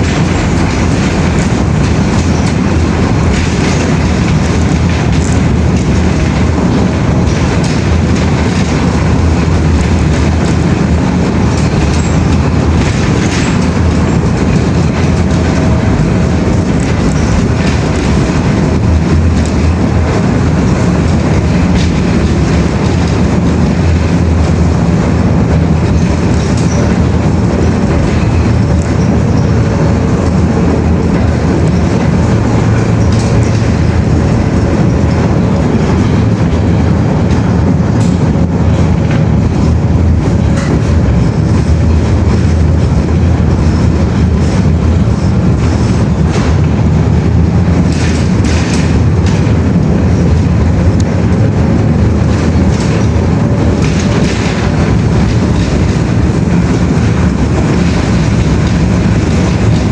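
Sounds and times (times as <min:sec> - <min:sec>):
low rumble of moving vehicle: 0:00.0 - 0:59.9.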